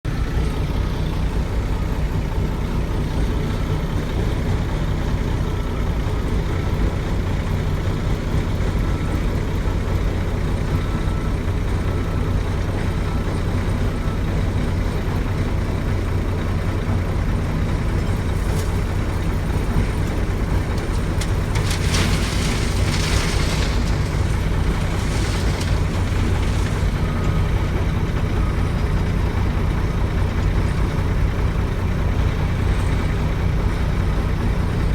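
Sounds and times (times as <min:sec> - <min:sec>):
diesel truck engine running: 0:00.0 - 0:34.9.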